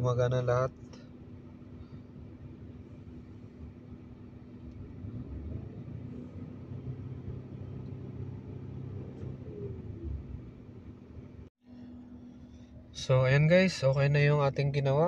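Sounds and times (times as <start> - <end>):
turbocharged engine revving: 4.4 - 11.1.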